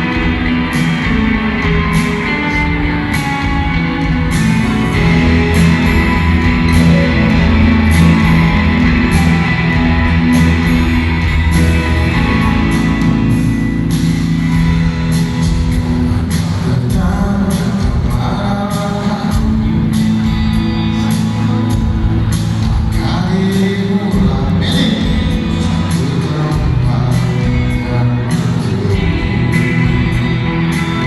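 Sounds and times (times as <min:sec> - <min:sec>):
rock band playing live: 0:00.0 - 0:31.0.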